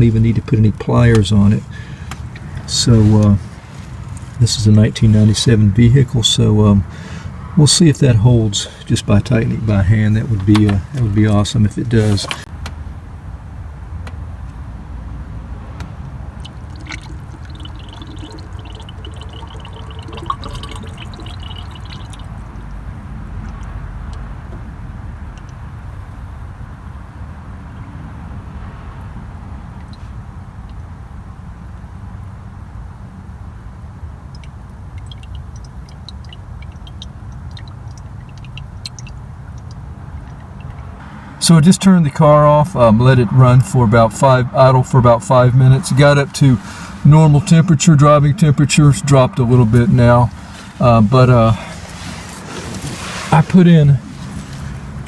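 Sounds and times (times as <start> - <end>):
liquid gurgling and glugging: 16.3 - 22.8, 34.3 - 41.0
car engine idling: 29.2 - 55.0.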